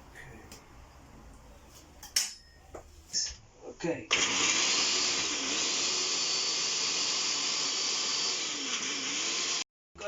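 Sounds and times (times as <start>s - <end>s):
electric blender running: 4.1s - 9.6s.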